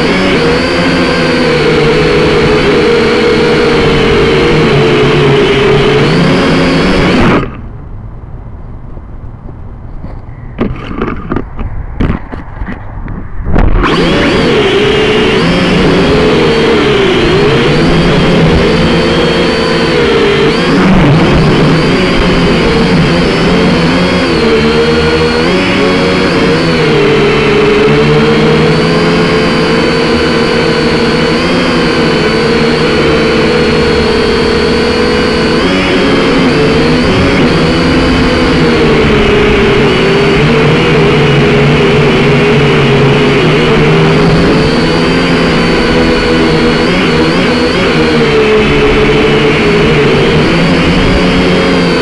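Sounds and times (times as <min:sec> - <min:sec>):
wind noise: 0:00.0 - 0:29.3, 0:30.8 - 0:52.0
drone propellers whining: 0:00.0 - 0:52.0
wind buffeting microphone: 0:07.6 - 0:18.7
low rumble: 0:11.2 - 0:14.6.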